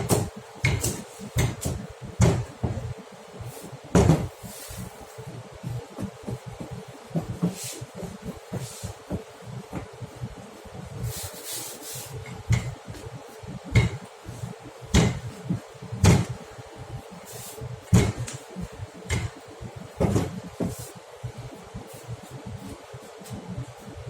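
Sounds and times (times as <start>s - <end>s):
kitchen knocks and clatter: 0.0s - 2.8s, 3.9s - 4.4s, 12.3s - 12.8s, 13.7s - 14.1s, 14.9s - 15.3s, 16.0s - 16.4s, 17.9s - 18.4s, 19.1s - 19.4s, 20.0s - 20.8s
faint steady hum: 0.0s - 24.0s.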